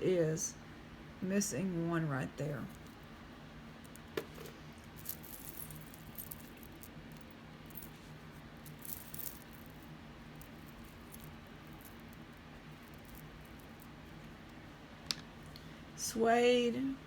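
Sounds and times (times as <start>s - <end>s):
low steady hum: 0.0s - 17.0s
jewelry chains and beads clicking: 4.8s - 8.0s, 8.6s - 13.9s.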